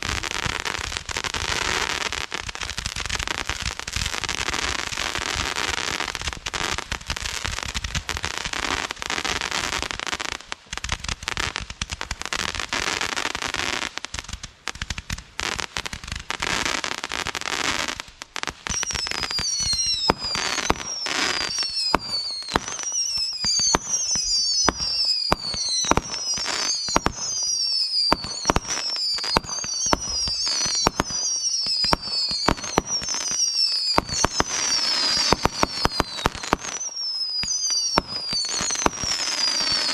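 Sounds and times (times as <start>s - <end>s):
fireworks bangs: 0.0s - 39.9s
fireworks crackling: 0.0s - 39.9s
fireworks whistling: 14.8s - 39.9s.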